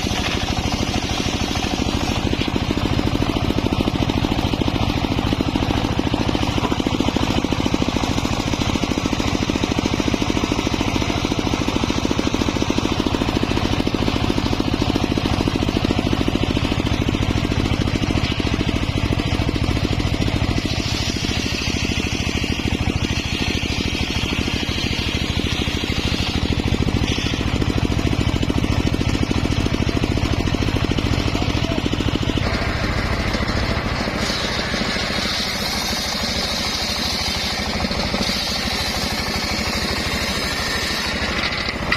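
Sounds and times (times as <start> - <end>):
saw whine: 0.0 - 41.9
sawmill engine running: 0.0 - 41.9.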